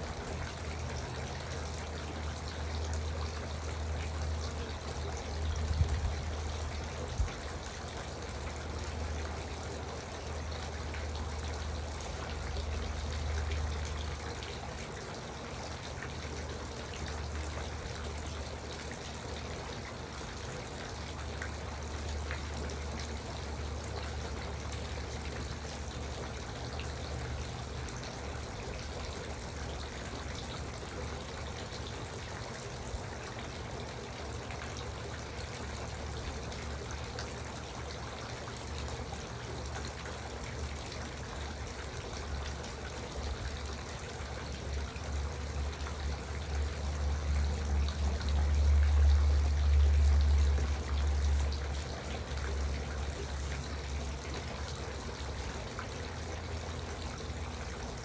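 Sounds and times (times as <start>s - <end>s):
fountain water trickling and splashing: 0.0s - 58.0s.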